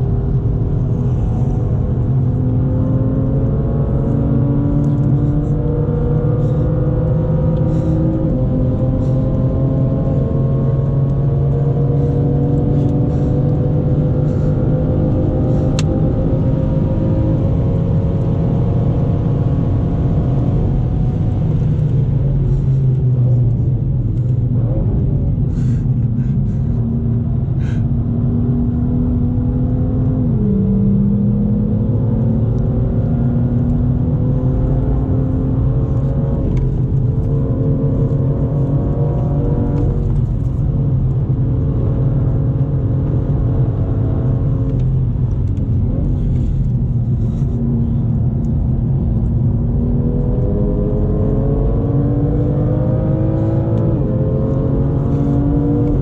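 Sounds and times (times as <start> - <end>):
tyre and road noise: 0.0 - 18.4, 33.3 - 56.0
car engine accelerating: 0.0 - 56.0.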